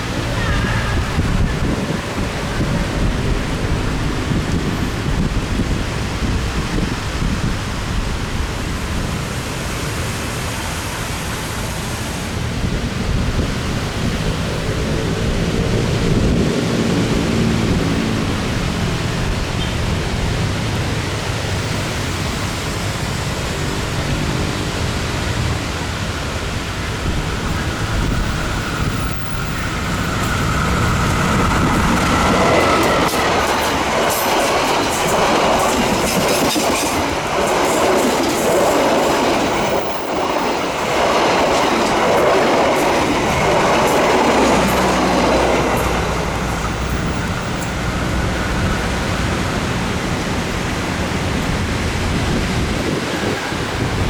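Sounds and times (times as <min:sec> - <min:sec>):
train rumble: 0:00.0 - 0:54.0
train wheels clattering over rail joints: 0:27.2 - 0:54.0.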